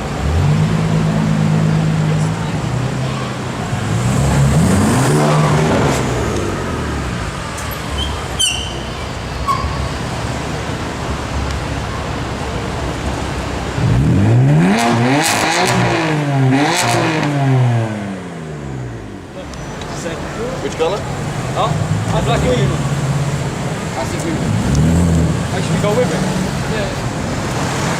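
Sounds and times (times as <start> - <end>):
car engine revving: 0.0 - 7.9, 13.1 - 19.3, 20.6 - 27.9
street traffic noise: 0.0 - 27.9.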